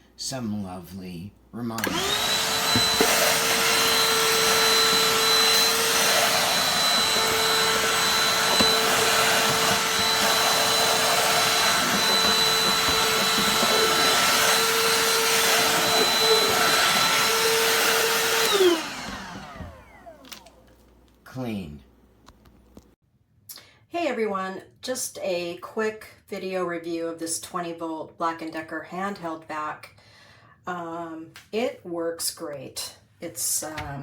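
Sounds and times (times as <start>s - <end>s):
handheld vacuum motor whine: 1.8s - 20.7s.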